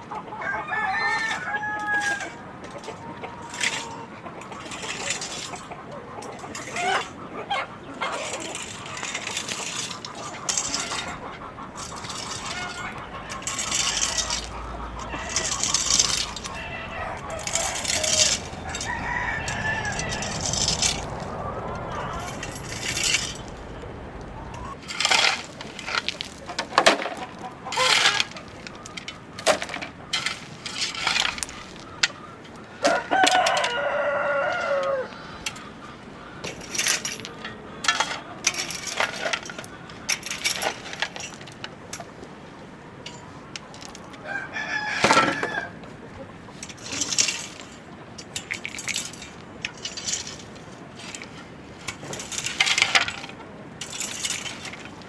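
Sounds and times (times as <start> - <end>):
chickens clucking: 0.0 - 55.0
rooster crowing: 0.3 - 4.1, 9.0 - 24.8, 32.8 - 35.6, 44.2 - 45.9.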